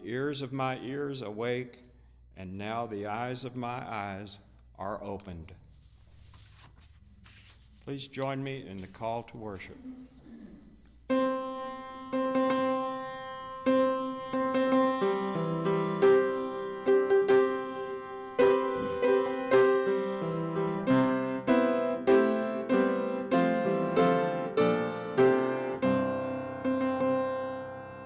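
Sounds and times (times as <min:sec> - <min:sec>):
slow piano playing: 0:11.0 - 0:28.0.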